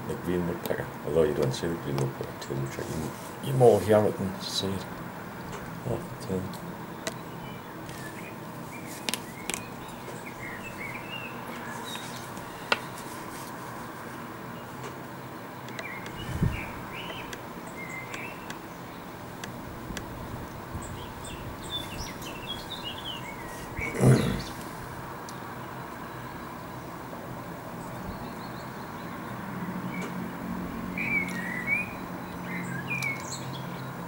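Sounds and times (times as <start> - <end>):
small birds chirping: 0.0 - 27.0, 27.7 - 34.0
background hiss: 0.0 - 29.1
sharp clicks: 15.6 - 16.2.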